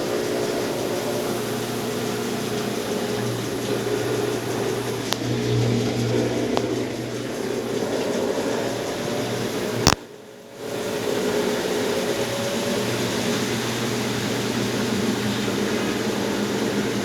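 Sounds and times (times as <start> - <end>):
washing machine motor hum: 0.0 - 17.0
faint clicks: 2.0 - 10.1.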